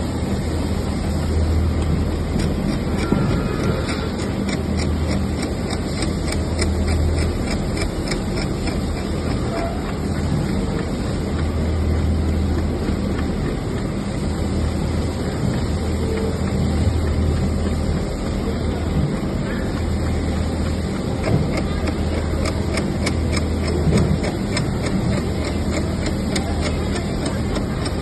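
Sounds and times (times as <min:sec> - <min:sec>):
low motor hum: 0:00.0 - 0:28.0
faint regular clicks: 0:03.8 - 0:28.0.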